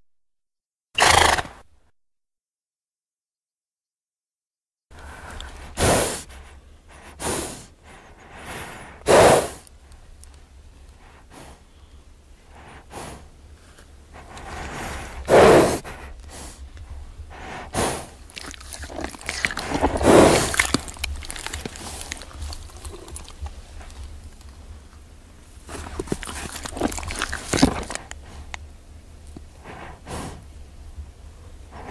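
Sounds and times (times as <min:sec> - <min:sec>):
horse snorting: 0:01.0 - 0:01.6, 0:07.1 - 0:09.7, 0:14.2 - 0:16.6, 0:17.3 - 0:24.1, 0:25.6 - 0:28.6
horse breathing: 0:04.9 - 0:24.8, 0:25.5 - 0:28.6, 0:29.3 - 0:30.5, 0:31.5 - 0:31.9.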